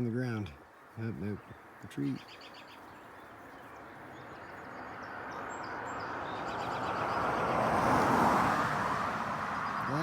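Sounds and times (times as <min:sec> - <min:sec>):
faint bird chirps: 0:00.6 - 0:07.2
vehicle approaching on road: 0:03.3 - 0:10.0.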